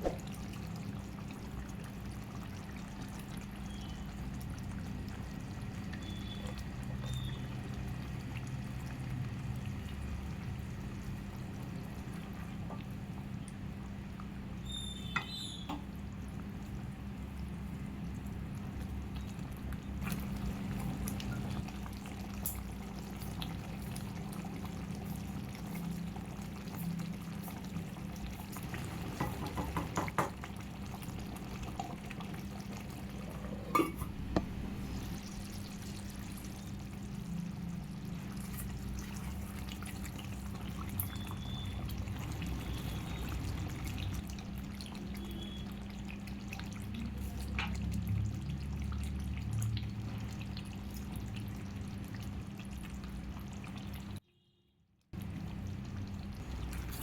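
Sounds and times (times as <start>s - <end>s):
liquid being poured: 19.0s - 54.1s.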